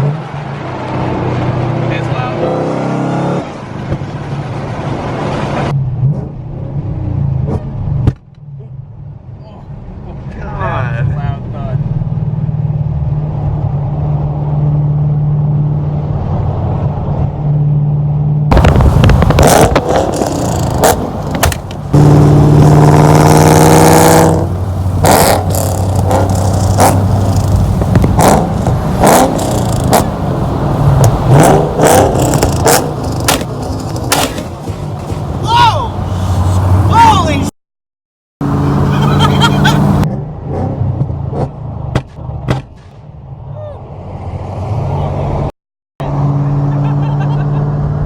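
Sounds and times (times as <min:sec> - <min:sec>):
exhaust pops and bangs: 0:18.5 - 0:22.7, 0:25.0 - 0:30.2, 0:31.0 - 0:35.5, 0:41.0 - 0:43.1
car engine revving: 0:18.5 - 0:37.0, 0:38.4 - 0:42.4.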